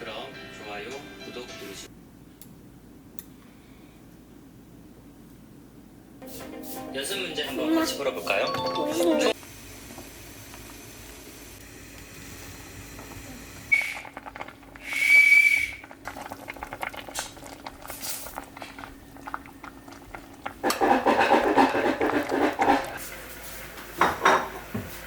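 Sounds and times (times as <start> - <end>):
dishes and pots clattering: 20.6 - 23.0, 23.9 - 25.0.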